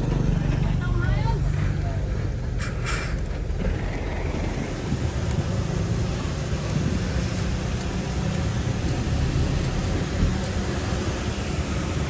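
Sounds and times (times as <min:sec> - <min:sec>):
heavy machinery diesel engine: 0:00.0 - 0:12.0.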